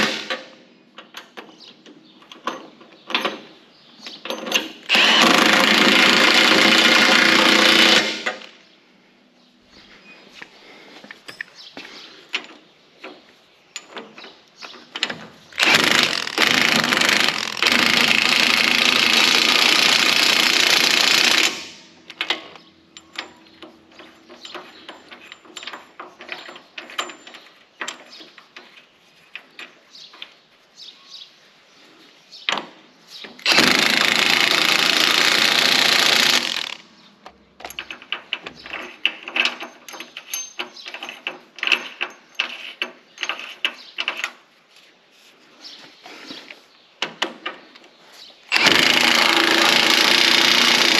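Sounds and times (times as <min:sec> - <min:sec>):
impact wrench: 0:00.0 - 0:00.6, 0:04.8 - 0:08.5, 0:15.6 - 0:22.5, 0:33.4 - 0:36.9, 0:48.5 - 0:50.9
tools clinking: 0:11.0 - 0:15.8, 0:22.1 - 0:30.4, 0:37.2 - 0:44.4.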